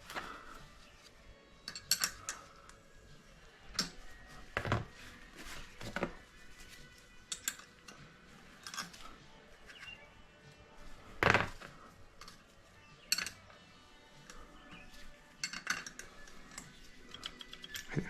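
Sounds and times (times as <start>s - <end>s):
metal hand tools clinking: 1.6s - 2.6s, 7.2s - 9.2s, 12.2s - 13.6s, 14.2s - 18.0s.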